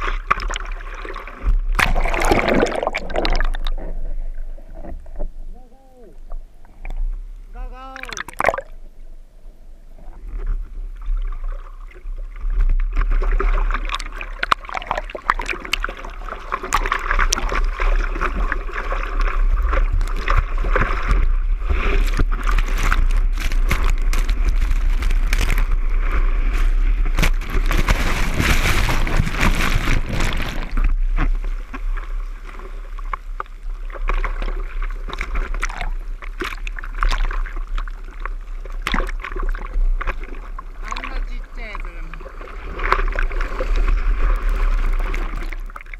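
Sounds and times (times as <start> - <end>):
seawater rushing and splashing: 0.0 - 4.0, 11.4 - 32.9, 38.8 - 45.9.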